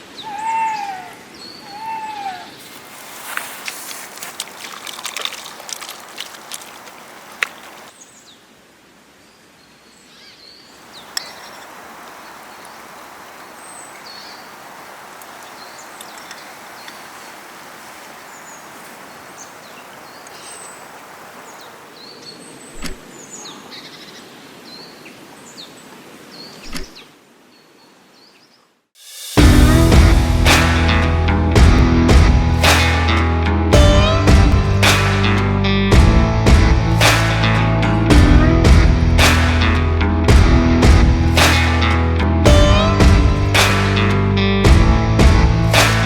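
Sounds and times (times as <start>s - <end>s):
small birds chirping: 9.9s - 17.4s, 18.1s - 28.7s.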